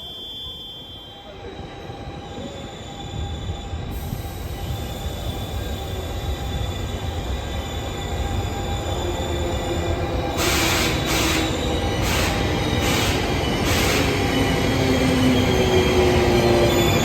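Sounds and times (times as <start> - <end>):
train coaches rumbling on rails: 0.0 - 17.0.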